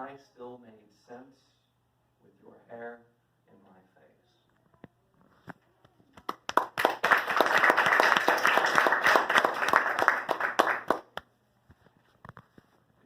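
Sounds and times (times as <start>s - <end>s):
audience applauding: 6.3s - 11.2s.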